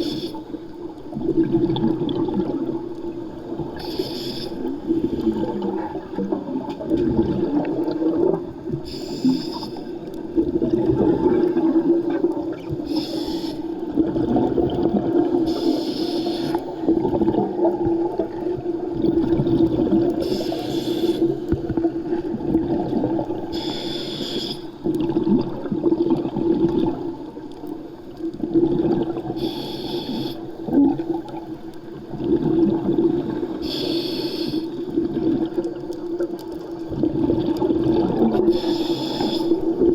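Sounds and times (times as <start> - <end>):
regulator inhale hiss: 0.0 - 0.6, 3.8 - 5.3, 8.8 - 10.1, 12.8 - 13.8, 15.4 - 16.8, 20.2 - 21.6, 23.5 - 24.8, 29.4 - 30.6, 33.5 - 34.8, 38.4 - 39.8
exhaled air bubbling: 0.0 - 39.9.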